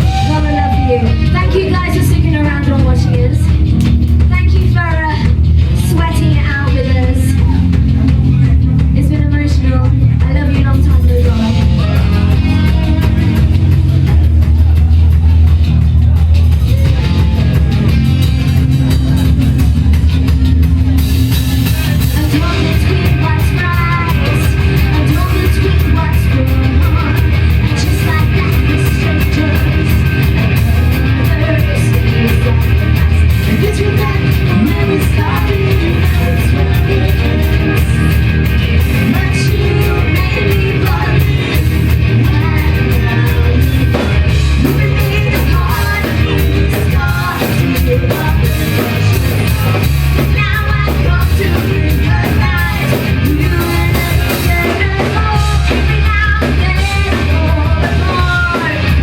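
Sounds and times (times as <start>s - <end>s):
person singing: 0.0s - 3.6s, 21.6s - 59.0s
live rock band playing: 0.0s - 59.0s.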